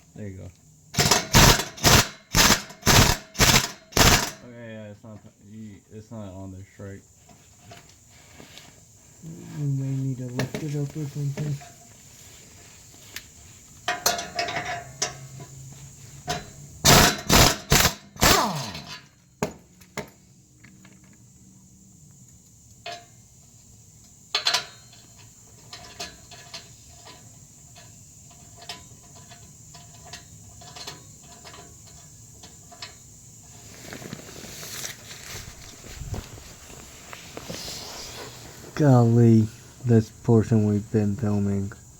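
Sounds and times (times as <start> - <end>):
metal clanks and taps: 13.8 - 15.6, 16.2 - 17.3, 22.8 - 23.2, 24.3 - 33.0
loud metal knocks: 16.3 - 19.0.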